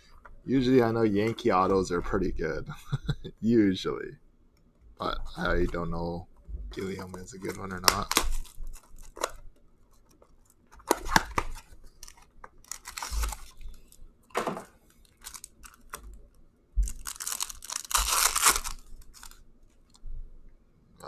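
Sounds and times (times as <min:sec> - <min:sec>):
foil wrapper tearing and crinkling: 0:06.8 - 0:09.4, 0:10.4 - 0:14.0, 0:14.9 - 0:16.0, 0:16.8 - 0:19.4.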